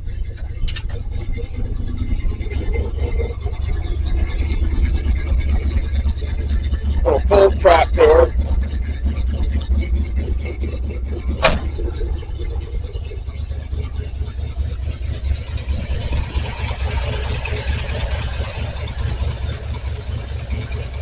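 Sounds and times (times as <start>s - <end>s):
truck engine idling: 0.0s - 21.0s
sharp clank: 11.4s - 11.8s.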